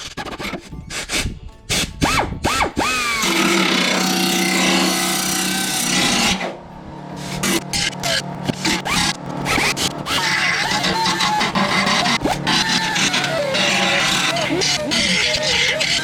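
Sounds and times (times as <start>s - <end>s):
power tool running: 2.0s - 16.0s
scraping and rasping on sheet steel: 7.2s - 16.0s.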